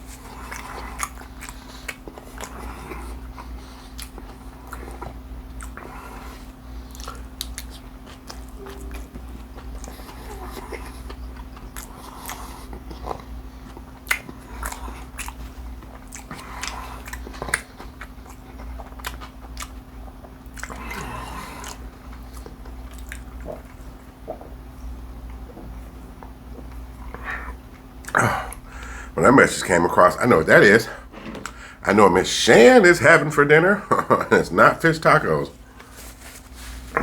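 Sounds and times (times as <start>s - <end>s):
chewing and crunching crispy food: 0.0s - 28.7s.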